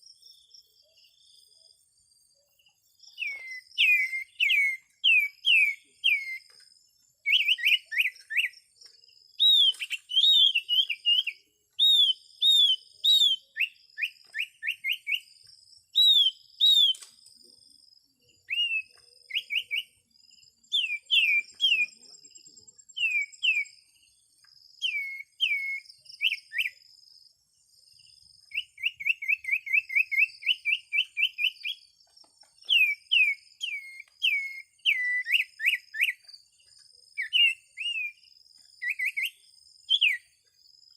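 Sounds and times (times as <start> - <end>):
bird chirping sharply: 3.1 - 6.6.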